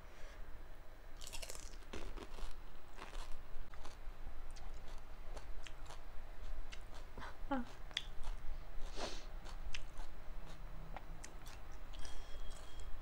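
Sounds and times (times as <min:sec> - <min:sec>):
crunching and wet chewing: 0:01.2 - 0:07.1, 0:09.4 - 0:12.9.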